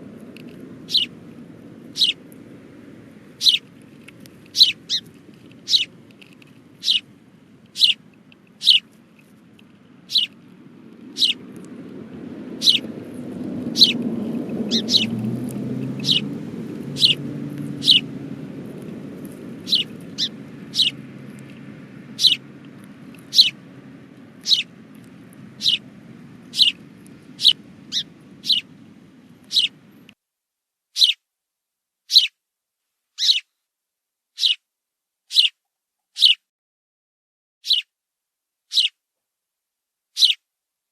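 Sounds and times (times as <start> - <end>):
cockatoo chirping: 0.6 - 1.2, 1.8 - 2.3, 3.3 - 3.7, 4.4 - 6.0, 6.7 - 7.1, 7.7 - 8.9, 10.0 - 10.4, 11.0 - 11.5, 12.6 - 12.9, 13.7 - 18.2, 18.8 - 30.1, 31.0 - 31.2, 32.1 - 32.3, 33.2 - 33.5, 34.4 - 34.6, 35.3 - 35.6, 36.2 - 36.4, 37.6 - 37.9, 38.7 - 39.0, 40.2 - 40.4.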